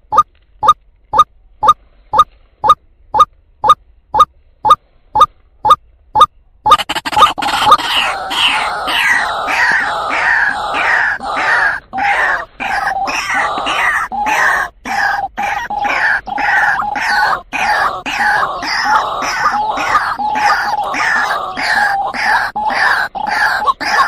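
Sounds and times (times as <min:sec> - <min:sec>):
waterhen rapid calls: 0:06.7 - 0:24.0.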